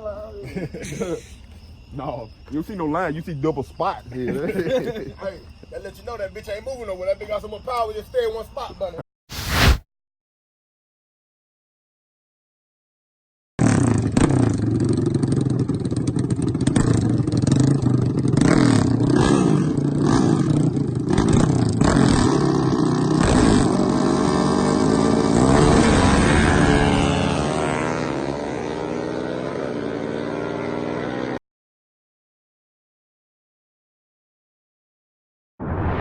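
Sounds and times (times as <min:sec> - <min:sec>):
truck engine revving hard: 0:13.6 - 0:31.4.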